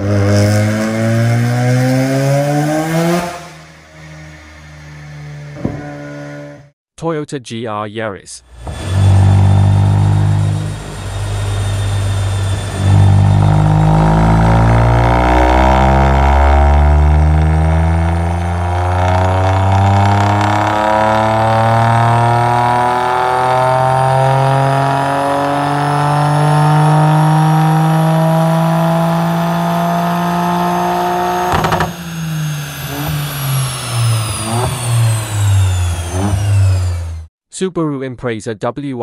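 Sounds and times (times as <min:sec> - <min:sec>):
car engine revving on a dyno: 0:00.0 - 0:06.7, 0:08.5 - 0:37.3
exhaust cracks: 0:08.5 - 0:28.1.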